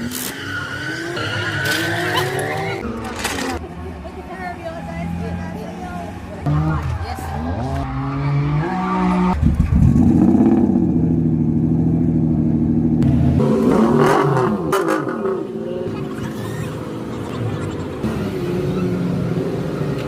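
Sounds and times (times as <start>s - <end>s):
car engine revving: 5.0s - 20.0s.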